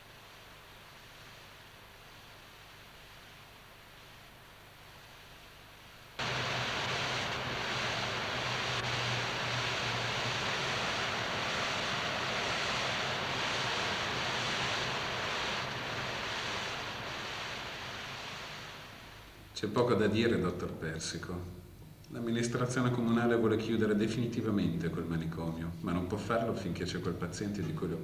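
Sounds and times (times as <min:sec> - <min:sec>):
low hum: 0:06.2 - 0:19.4
steady rushing noise: 0:06.2 - 0:19.5.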